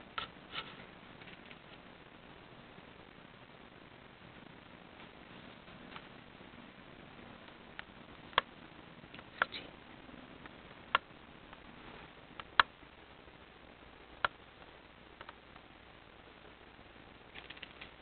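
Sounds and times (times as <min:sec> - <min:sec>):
sharp isolated clicks: 0:14.2 - 0:14.4, 0:15.2 - 0:15.4.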